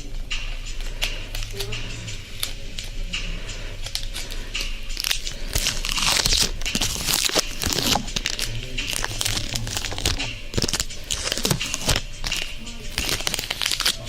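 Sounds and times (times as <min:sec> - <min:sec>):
crinkling and rubbing at microphone: 0:04.9 - 0:14.0.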